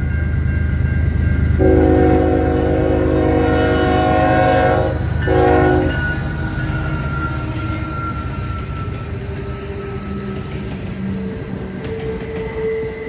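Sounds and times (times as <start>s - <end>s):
locomotive engine rumble: 0.3s - 12.2s
locomotive air horn blasts: 1.6s - 7.8s.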